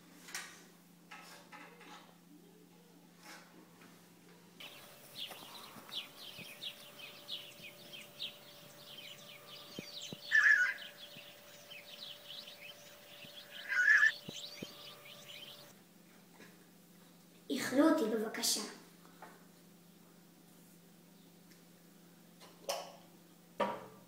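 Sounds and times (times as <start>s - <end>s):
faint steady hum: 3.8s - 22.5s
birds chirping: 4.6s - 15.7s.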